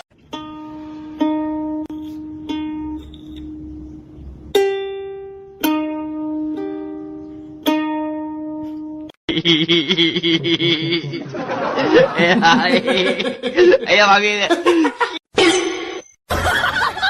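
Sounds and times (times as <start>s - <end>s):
ukulele plucked notes: 0.0s - 9.1s.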